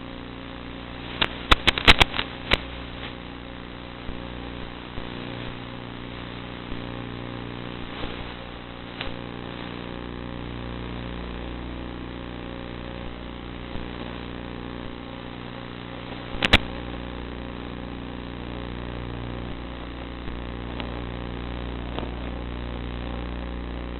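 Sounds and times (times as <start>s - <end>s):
sharp click: 1.2s - 2.6s, 16.4s - 16.7s.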